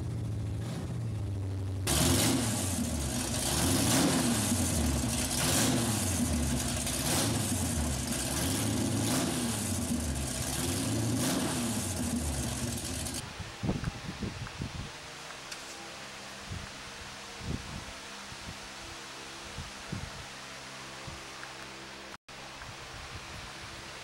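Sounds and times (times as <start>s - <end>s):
car engine idling and revving: 0.0s - 13.2s.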